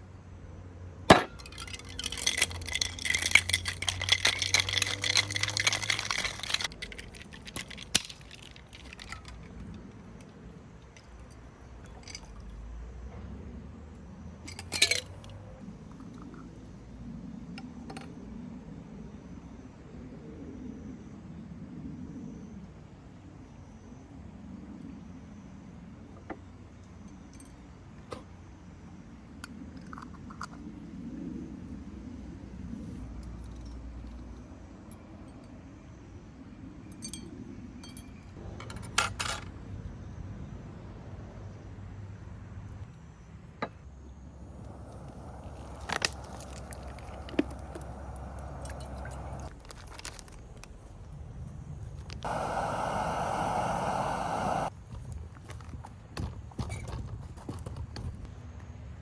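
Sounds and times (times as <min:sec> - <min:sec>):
low background rumble: 0:44.3 - 0:49.6.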